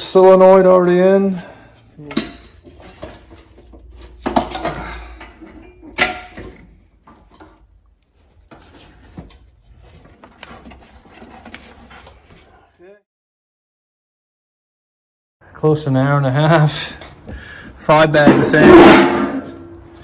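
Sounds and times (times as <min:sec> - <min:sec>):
metal parts and tools clanking: 0:02.0 - 0:07.6, 0:18.2 - 0:20.0.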